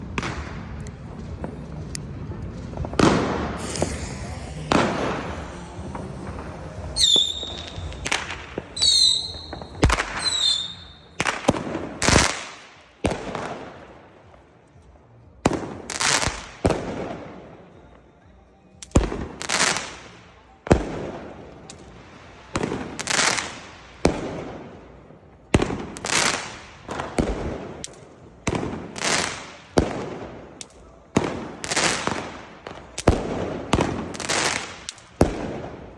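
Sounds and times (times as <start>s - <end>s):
fireworks shots and bangs: 0.0s - 13.9s, 15.4s - 17.4s, 22.5s - 24.8s, 25.5s - 35.9s
high whistling fireworks: 0.0s - 14.4s, 19.0s - 35.9s.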